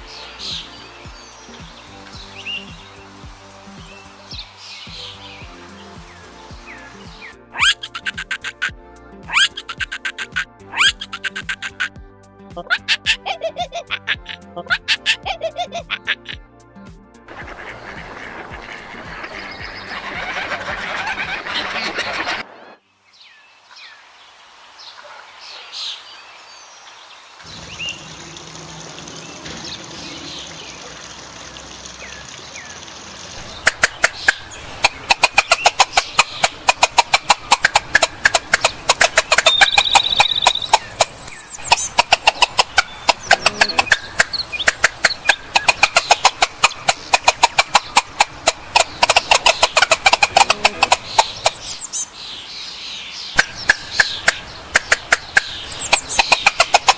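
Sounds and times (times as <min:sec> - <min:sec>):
quiet animal and outdoor sounds: 0:00.0 - 0:11.9, 0:12.5 - 0:16.4, 0:17.3 - 0:56.9
fowl calling sharply: 0:09.3 - 0:11.9, 0:17.3 - 0:22.8, 0:33.6 - 0:47.0, 0:48.2 - 0:51.7.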